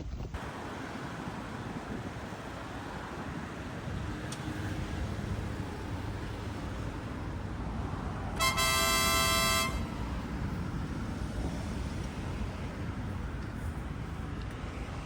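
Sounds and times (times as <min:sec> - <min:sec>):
vehicle and road rumble: 0:00.0 - 0:15.0
vehicle horn honking: 0:08.4 - 0:10.0.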